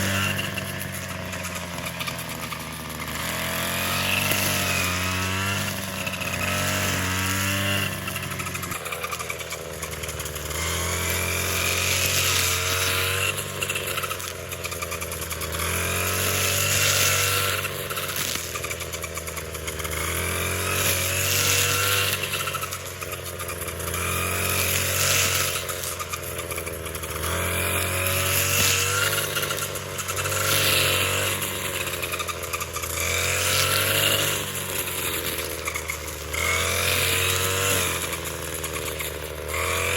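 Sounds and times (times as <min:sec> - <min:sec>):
small engine tool revving: 0:00.0 - 0:39.9.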